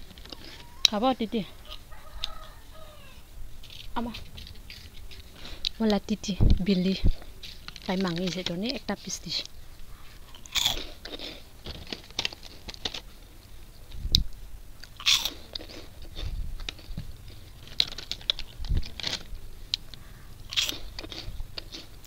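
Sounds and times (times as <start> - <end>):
crunchy snacks being chewed: 3.6 - 6.0, 6.6 - 13.3, 14.8 - 22.0.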